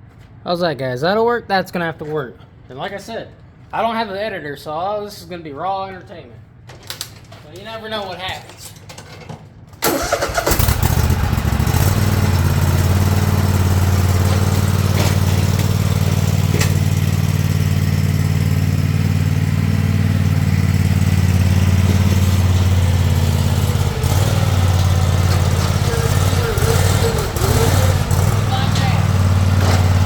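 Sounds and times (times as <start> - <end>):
tractor engine running: 9.8 - 30.0.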